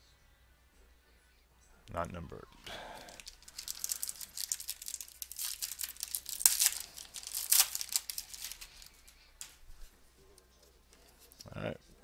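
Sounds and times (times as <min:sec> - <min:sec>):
foil wrapper crinkling: 0:02.8 - 0:09.6
foil ripping: 0:03.2 - 0:09.5.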